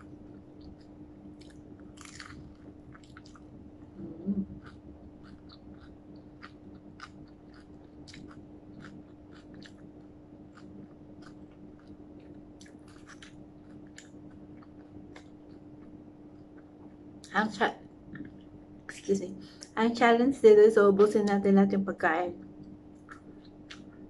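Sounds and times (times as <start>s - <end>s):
mouth chewing crispy food: 0.0s - 17.3s, 22.4s - 24.0s
steady low hum: 0.0s - 24.0s.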